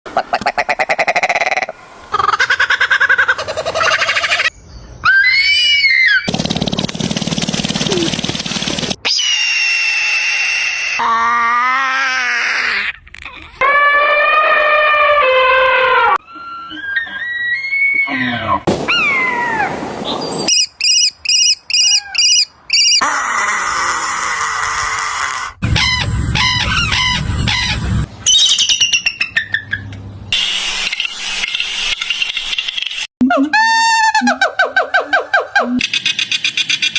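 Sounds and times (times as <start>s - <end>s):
bird trill: 20.2s - 23.0s, 25.8s - 29.9s
repeated bird call: 20.2s - 23.0s.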